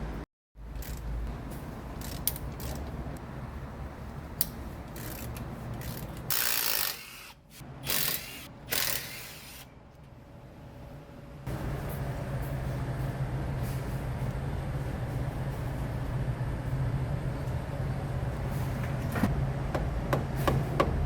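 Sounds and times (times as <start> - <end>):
low shop hum: 0.0 - 21.0
ratchet wrench clicking: 0.8 - 1.1, 2.0 - 2.9, 4.4 - 9.6.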